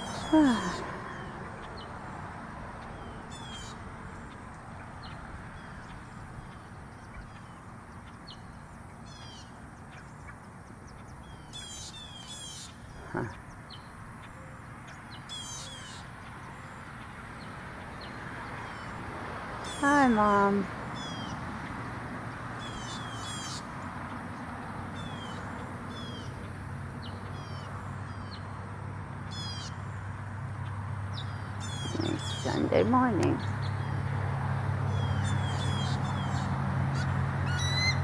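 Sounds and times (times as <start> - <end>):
small birds chirping: 0.0 - 19.0, 22.3 - 28.6, 29.2 - 34.1.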